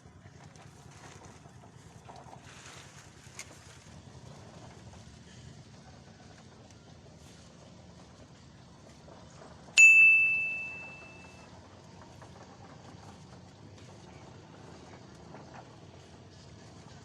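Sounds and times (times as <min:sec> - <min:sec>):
metallic ding: 0:09.8 - 0:11.4.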